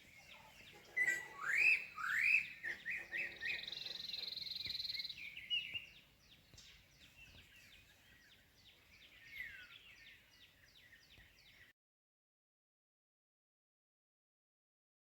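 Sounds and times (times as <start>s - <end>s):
downward-sweeping bird chirps: 0.0s - 8.4s.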